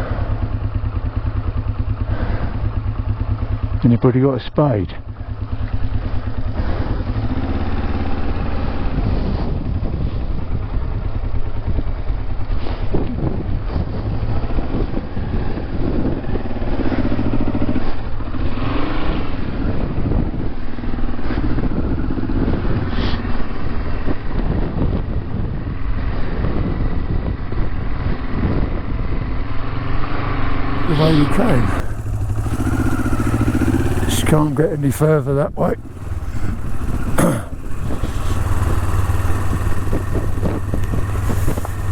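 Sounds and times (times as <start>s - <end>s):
motorcycle engine revving: 4.9s - 9.6s, 30.8s - 41.9s.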